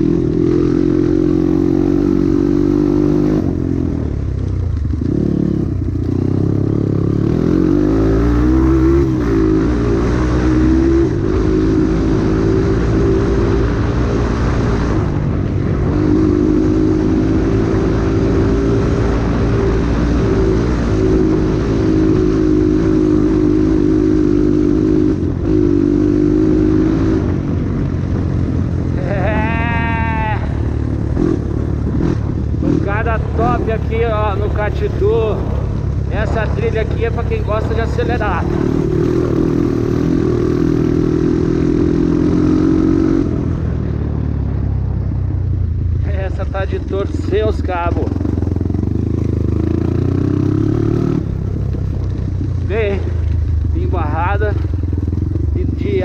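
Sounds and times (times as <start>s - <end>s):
constant rushing noise: 0.0s - 56.0s
dirt bike engine running: 0.0s - 56.0s.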